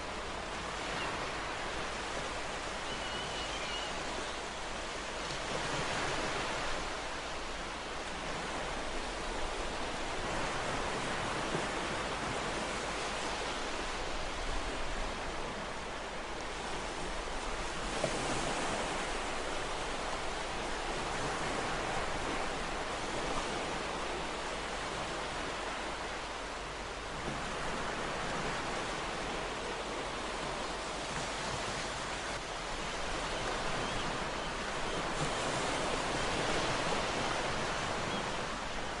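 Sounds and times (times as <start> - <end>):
ocean waves washing on shore: 0.0 - 39.0.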